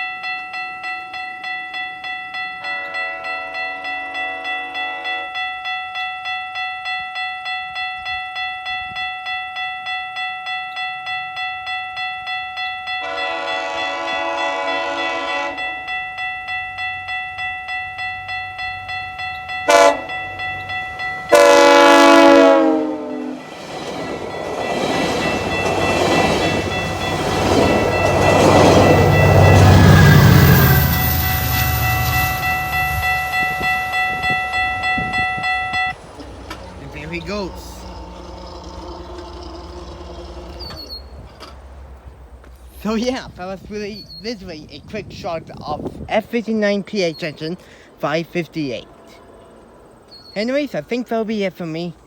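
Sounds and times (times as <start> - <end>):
crossing warning bell: 0.0 - 52.0
train engine and wheel rumble: 0.0 - 52.0
locomotive horn blasts: 2.6 - 5.5, 13.0 - 15.8, 19.2 - 23.5, 25.6 - 41.6, 48.8 - 49.9.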